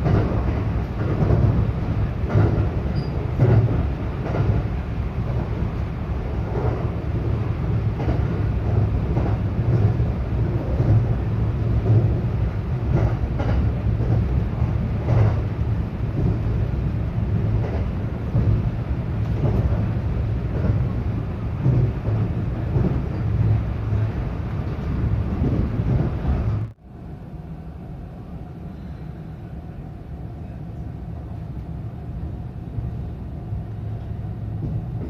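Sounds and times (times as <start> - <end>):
faint rail clacks: 0.0 - 26.8, 34.0 - 35.0
train wheels rumbling on rail: 0.0 - 35.0.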